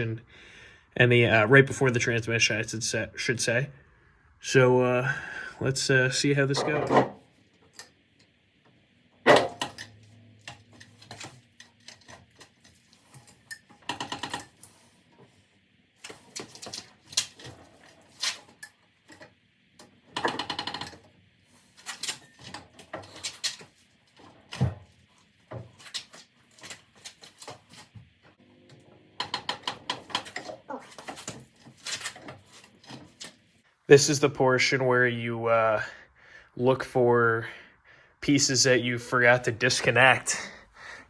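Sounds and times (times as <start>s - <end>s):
metallic clicks and knocks: 13.5s - 14.6s.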